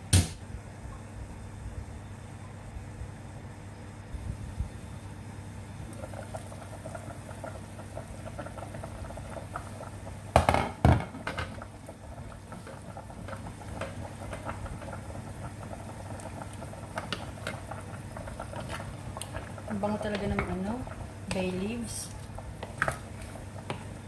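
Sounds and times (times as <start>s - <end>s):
sauce simmering and bubbling: 4.8s - 24.0s.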